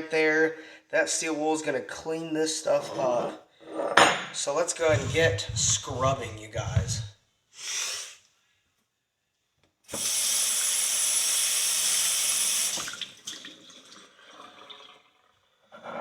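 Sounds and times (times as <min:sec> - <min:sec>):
water tap running: 0:09.9 - 0:15.2.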